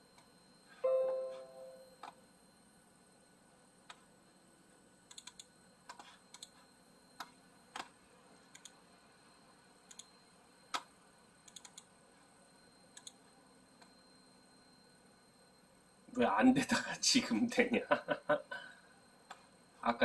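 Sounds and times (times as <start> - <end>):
computer keyboard keystrokes: 5.1 - 6.5, 11.5 - 11.9.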